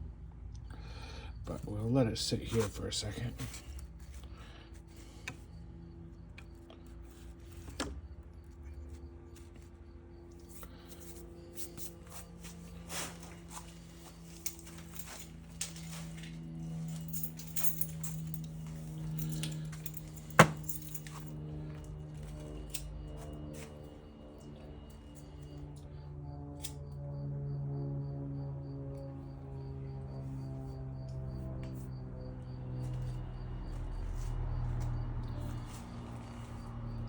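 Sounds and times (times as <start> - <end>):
small metal parts clinking: 14.2 - 23.7.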